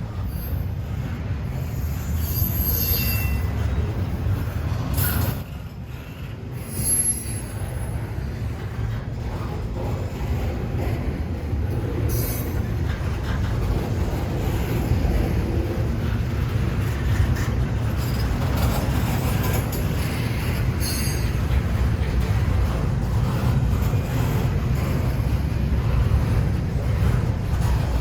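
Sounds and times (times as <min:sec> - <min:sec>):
train wheels rumbling on rail: 0:00.0 - 0:28.0
high-pitched wheel squeals: 0:01.6 - 0:03.7, 0:06.6 - 0:08.0, 0:20.8 - 0:21.4.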